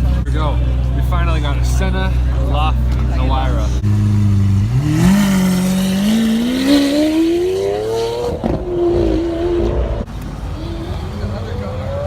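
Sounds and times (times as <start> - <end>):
sports car engine accelerating: 2.2 - 10.1.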